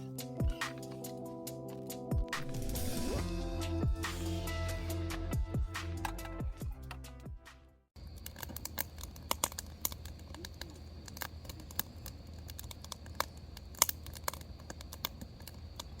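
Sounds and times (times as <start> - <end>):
crackling and popping clicks: 8.0 - 16.0.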